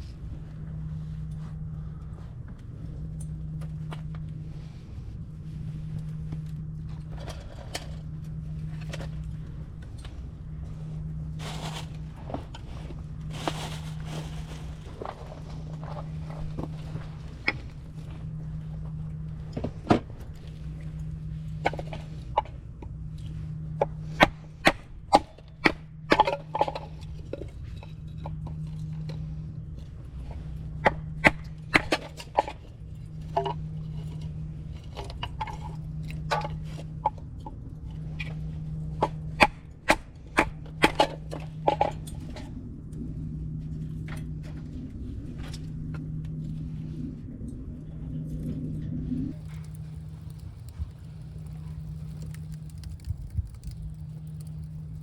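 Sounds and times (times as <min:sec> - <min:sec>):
low hum: 0:00.0 - 0:55.0
firewood crackling: 0:13.0 - 0:22.3, 0:49.3 - 0:55.0.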